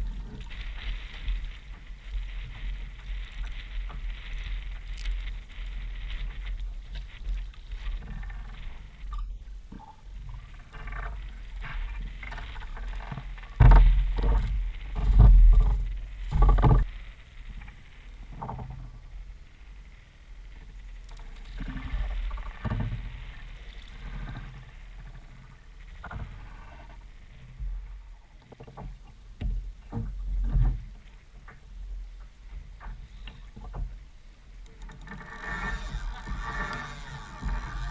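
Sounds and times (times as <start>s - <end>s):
water splashing against kayak: 0.0s - 37.9s
paddle knocking plastic hull: 13.6s - 16.9s.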